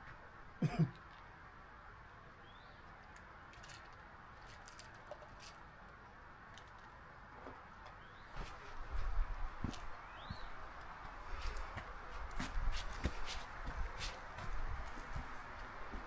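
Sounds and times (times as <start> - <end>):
steady low hiss: 0.0 - 16.0
faint bird chirps: 2.4 - 2.8, 10.0 - 10.6
footsteps on a trail: 8.2 - 16.0.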